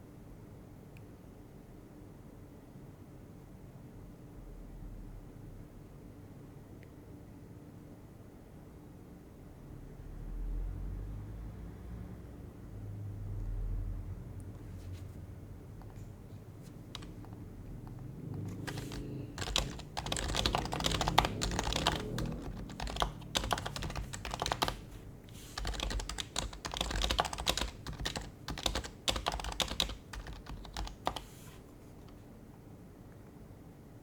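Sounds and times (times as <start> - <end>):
muted keyboard typing: 15.8 - 32.2.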